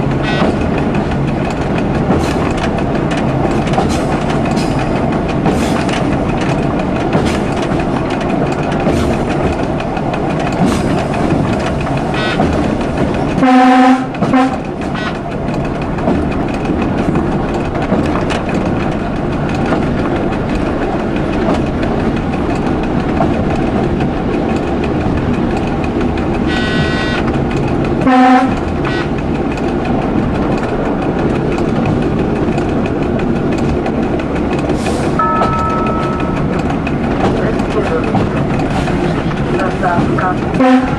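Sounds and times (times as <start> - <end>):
train running on rails: 0.0 - 40.9
wheels clicking over rail joints: 0.0 - 40.9
train horn blasts: 0.2 - 0.6, 12.1 - 12.5, 13.4 - 15.2, 26.5 - 27.2, 28.0 - 29.1, 40.6 - 40.9.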